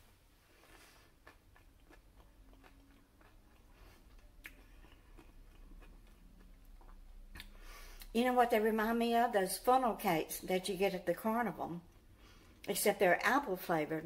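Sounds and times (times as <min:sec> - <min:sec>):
crunchy chewing: 0:00.6 - 0:07.7.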